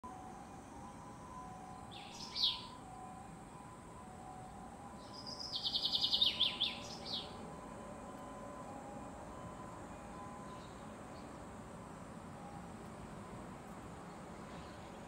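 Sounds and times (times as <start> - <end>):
small bird trilling: 1.9 - 2.7, 5.1 - 7.4.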